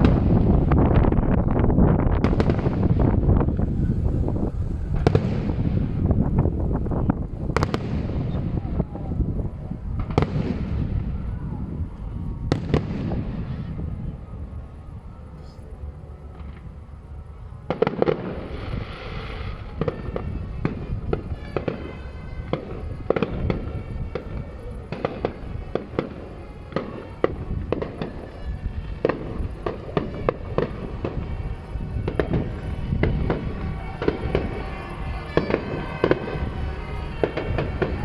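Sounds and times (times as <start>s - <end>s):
fireworks bursting and cracking: 0.0s - 14.6s, 17.6s - 38.0s
crackling hiss: 0.0s - 38.0s.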